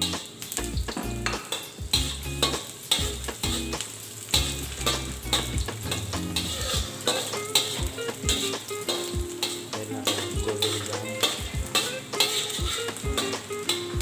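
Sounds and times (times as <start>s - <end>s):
background music: 0.0s - 14.0s
garlic and onion sizzling: 0.0s - 14.0s
metal spatula scraping a wok: 1.2s - 14.0s.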